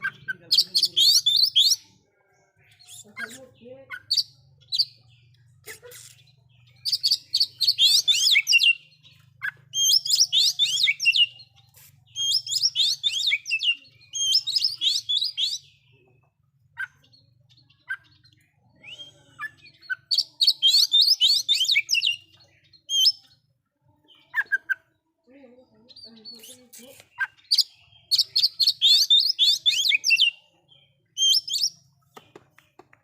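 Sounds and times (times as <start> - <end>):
bird whistling song: 0.0 - 1.8, 6.8 - 11.3, 12.1 - 15.8, 17.8 - 23.4, 27.2 - 30.4, 31.2 - 31.8.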